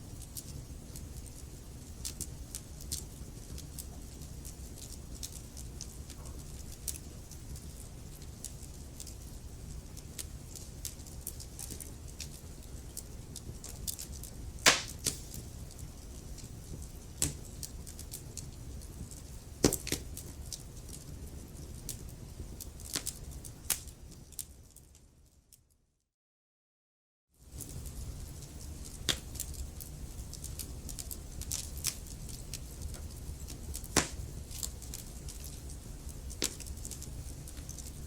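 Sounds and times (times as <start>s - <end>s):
log fire crackling: 0.0s - 25.0s, 27.4s - 38.0s.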